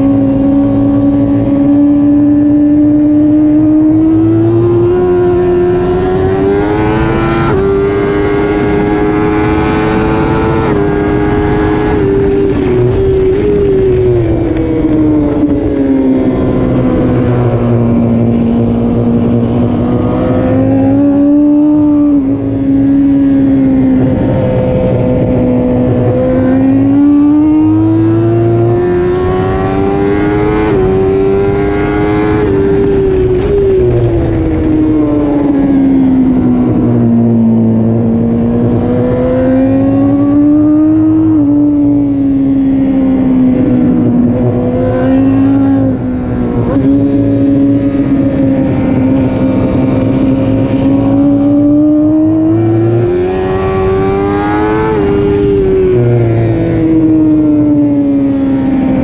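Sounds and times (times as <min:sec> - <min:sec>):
motorcycle engine at high revs: 0:00.0 - 0:59.0.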